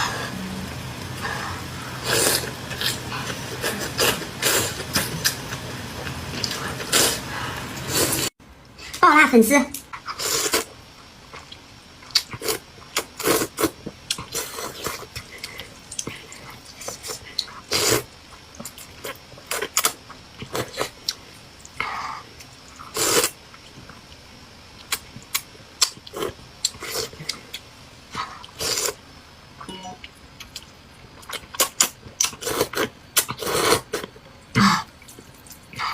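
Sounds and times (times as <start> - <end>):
noodles being slurped: 1.9 - 5.6, 6.4 - 8.3, 22.9 - 23.4, 28.4 - 29.0, 31.5 - 34.1
person chewing: 11.3 - 21.8, 30.4 - 35.9.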